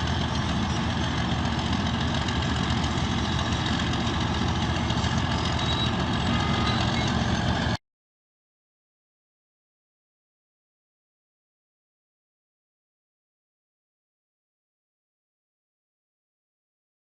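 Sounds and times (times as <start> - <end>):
bulldozer diesel engine running: 0.0 - 7.8.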